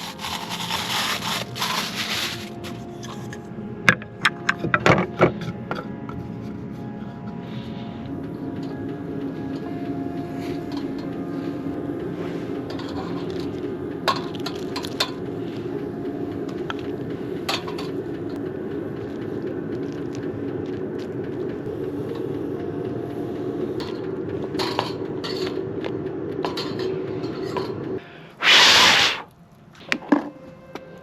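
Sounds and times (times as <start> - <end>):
short loud hiss: 28.4 - 29.3.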